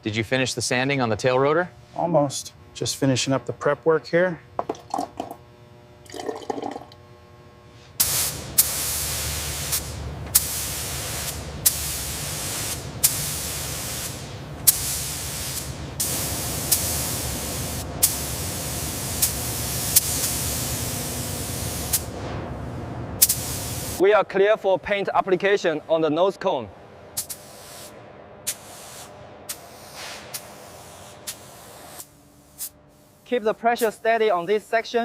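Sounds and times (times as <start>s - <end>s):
paint spray gun hissing: 8.0s - 22.2s, 23.2s - 24.0s, 27.2s - 34.7s.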